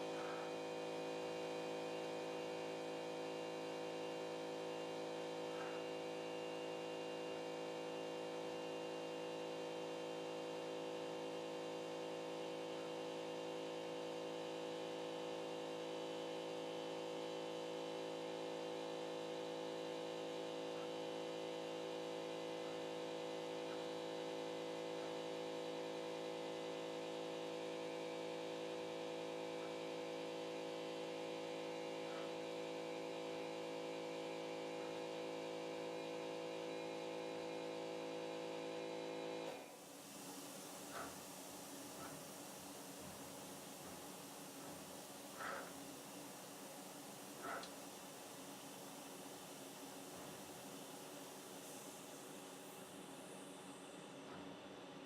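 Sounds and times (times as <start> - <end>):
plotter motors humming: 18.9 - 55.0.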